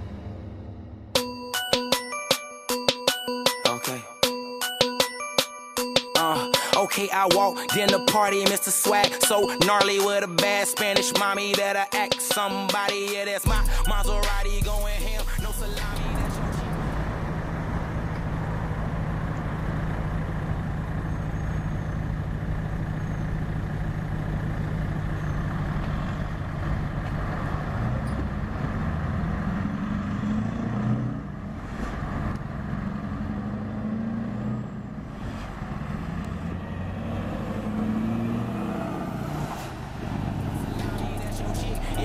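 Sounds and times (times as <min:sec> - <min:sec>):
diesel engine droning: 0:00.0 - 0:02.0, 0:12.8 - 0:42.0.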